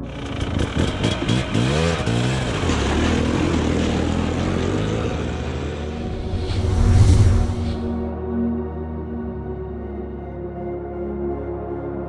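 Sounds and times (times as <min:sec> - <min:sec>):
snowbike engine revving: 0:00.1 - 0:06.6.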